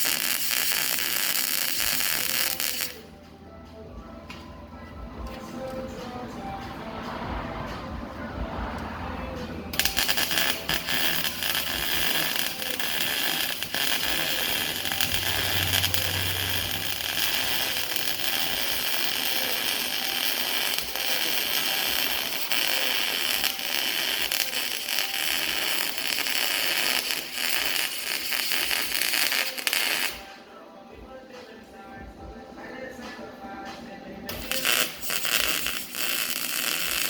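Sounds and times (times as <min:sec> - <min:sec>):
welding arc hissing and crackling: 0:00.0 - 0:03.1, 0:09.7 - 0:30.3, 0:34.3 - 0:37.0.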